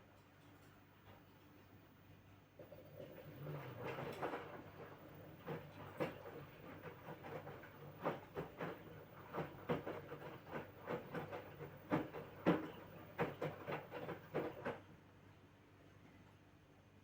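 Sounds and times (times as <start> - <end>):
laundry and water sloshing: 2.6 - 14.8.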